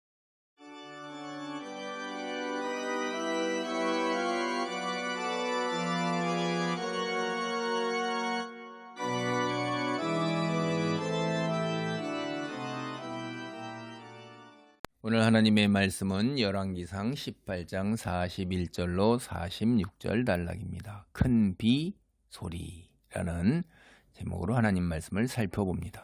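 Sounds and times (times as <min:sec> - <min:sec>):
organ playing slow chords: 0:00.6 - 0:14.8.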